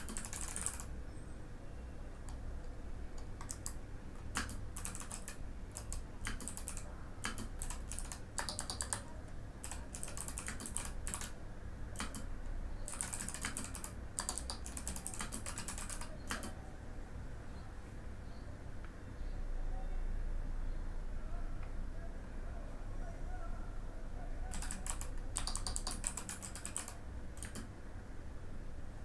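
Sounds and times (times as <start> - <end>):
clicky mechanical keyboard typing: 0.0 - 0.9, 3.2 - 11.4, 12.0 - 16.6, 24.5 - 27.7.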